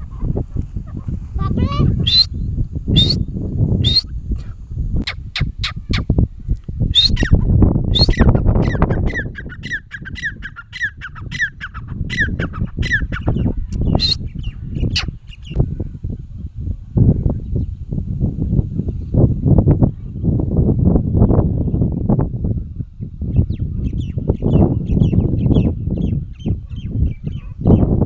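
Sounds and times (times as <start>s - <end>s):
partridges calling: 1.5s - 2.4s, 3.0s - 3.2s, 3.8s - 4.1s, 7.0s - 7.3s, 8.0s - 8.3s, 9.0s - 14.2s.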